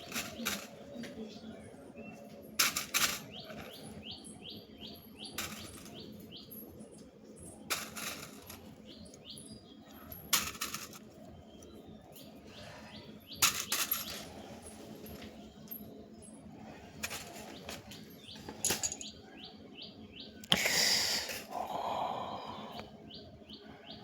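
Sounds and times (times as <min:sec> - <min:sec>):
small bird chirping: 0:03.2 - 0:07.7.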